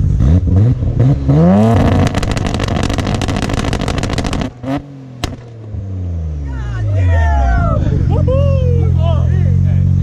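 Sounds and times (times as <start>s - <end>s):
car engine revving: 0.0s - 7.0s
launch limiter pops and crackles: 1.7s - 5.6s.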